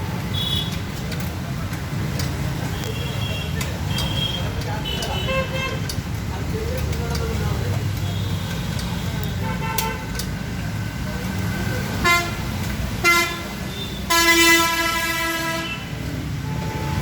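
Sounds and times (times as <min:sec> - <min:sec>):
horn tooting: 0:12.0 - 0:17.0.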